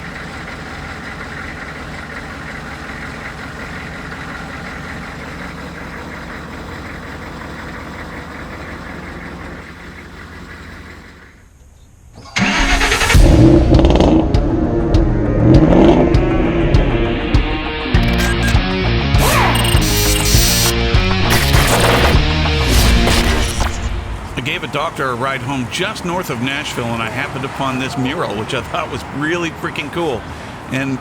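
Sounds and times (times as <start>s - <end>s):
diesel engine running: 0.0s - 31.0s
loud music: 12.4s - 24.3s.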